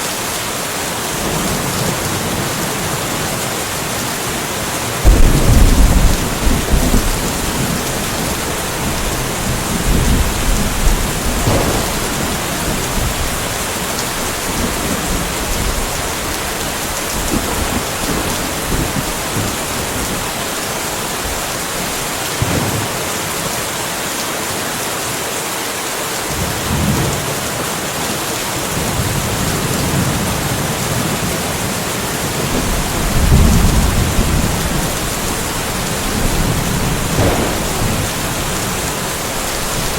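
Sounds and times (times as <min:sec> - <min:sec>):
steady rain hiss: 0:00.0 - 0:39.9
rolling thunder: 0:05.0 - 0:21.6, 0:28.8 - 0:39.9.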